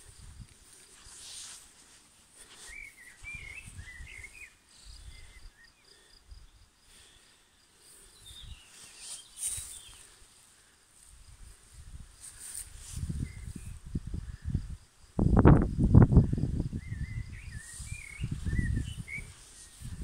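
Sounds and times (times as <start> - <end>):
small birds chirping and singing: 0.1 - 10.3, 16.7 - 20.0.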